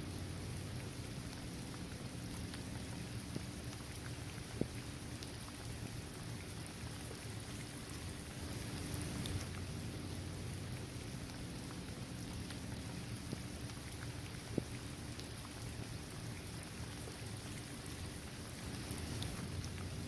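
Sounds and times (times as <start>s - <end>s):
steady rain: 0.0s - 20.0s
single raindrops ticking: 8.7s - 9.7s.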